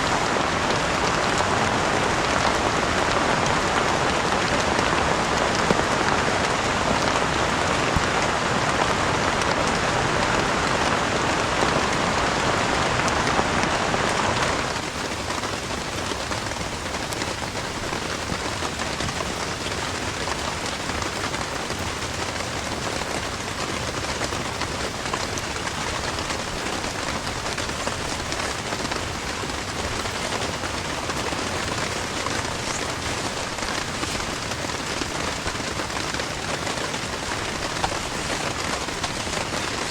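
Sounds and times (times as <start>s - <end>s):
heavy rain hiss: 0.0s - 39.9s.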